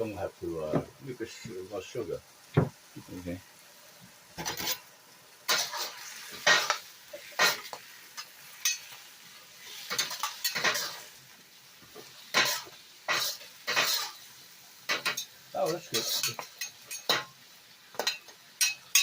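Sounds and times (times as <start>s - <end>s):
faint sizzling: 0.0s - 19.0s
utensil scraping in a pan: 4.4s - 4.9s, 5.5s - 11.2s, 11.8s - 14.2s, 14.9s - 17.4s, 18.0s - 19.0s.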